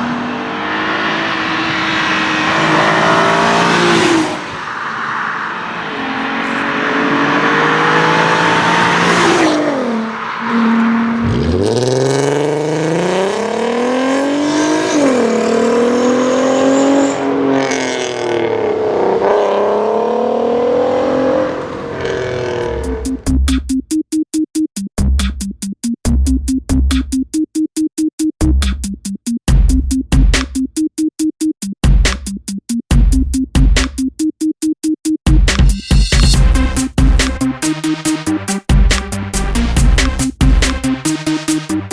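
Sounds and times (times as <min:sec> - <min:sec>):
car engines revving: 0:00.0 - 0:23.4
electronic music: 0:22.6 - 0:41.9.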